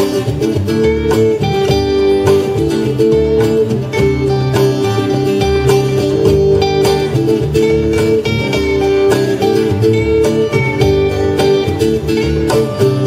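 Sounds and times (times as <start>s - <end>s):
acoustic guitar plucking: 0.0s - 13.0s
bass line: 0.0s - 13.0s
rhythmic guitar strumming: 0.0s - 13.0s.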